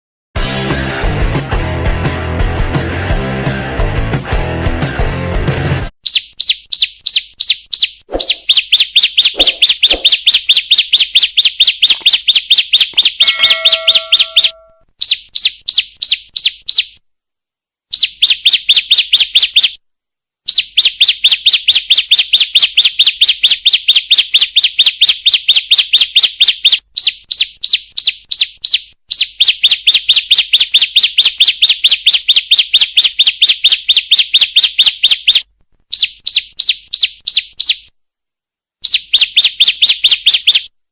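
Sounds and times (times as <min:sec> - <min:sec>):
bird chirping call: 0:09.2 - 0:10.8, 0:11.8 - 0:16.8.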